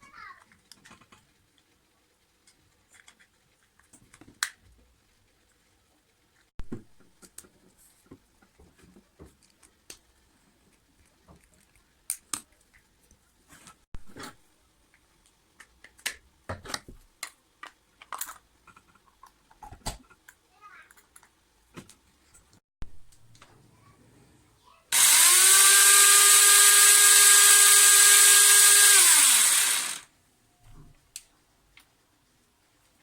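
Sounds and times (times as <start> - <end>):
small objects clicking and tapping: 10.7 - 13.2, 14.9 - 22.0.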